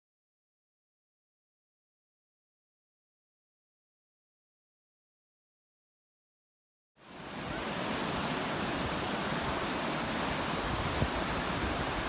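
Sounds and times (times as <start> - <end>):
ocean surf on a beach: 7.0 - 12.0.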